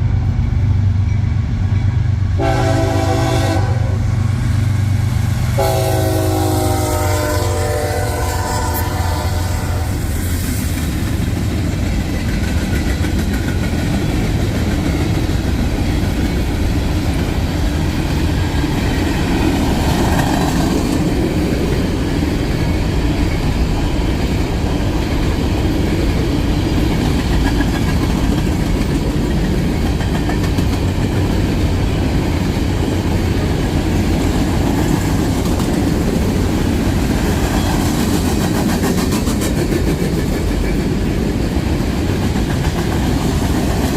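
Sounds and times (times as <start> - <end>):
freight train wheels rumbling on rails: 0.0 - 43.9.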